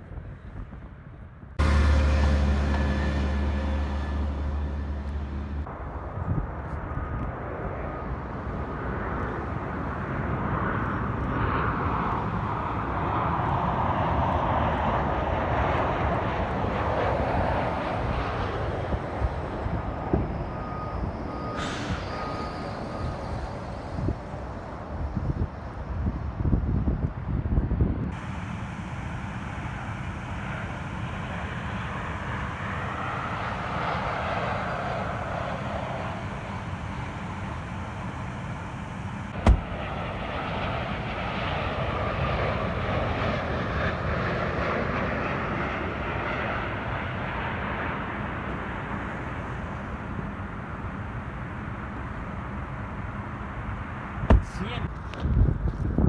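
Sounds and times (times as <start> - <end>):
jet airliner passing: 1.6 - 26.9, 28.1 - 55.1
sharp knock: 39.4 - 39.7, 54.3 - 54.6.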